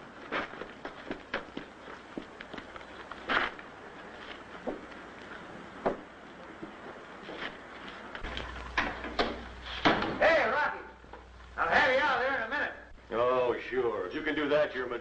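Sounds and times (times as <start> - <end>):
steady hiss: 0.0 - 15.0
light knocks and scuffs: 0.3 - 10.2.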